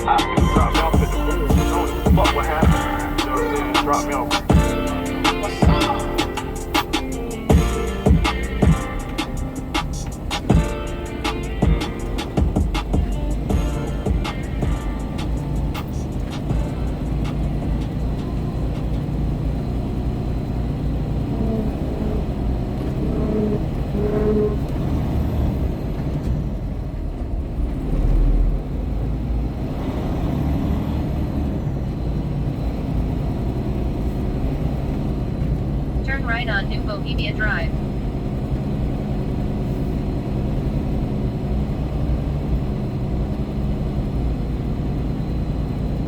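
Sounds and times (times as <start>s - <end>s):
heavy low bump: 0.0s - 18.4s
truck engine and road rumble: 0.0s - 46.0s.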